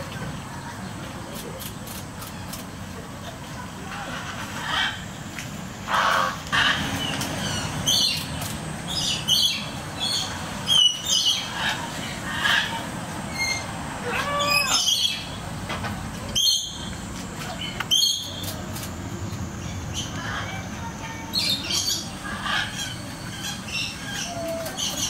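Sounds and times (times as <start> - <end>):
low outdoor background: 0.0 - 25.0
birds squawking: 3.8 - 15.4, 19.6 - 25.0.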